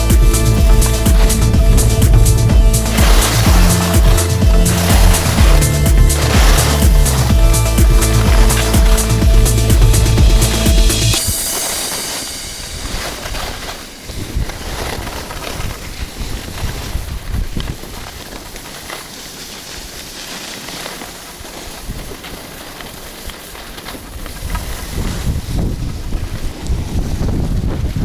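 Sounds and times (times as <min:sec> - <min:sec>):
wind buffeting microphone: 0:12.2 - 0:18.3, 0:24.1 - 0:28.0.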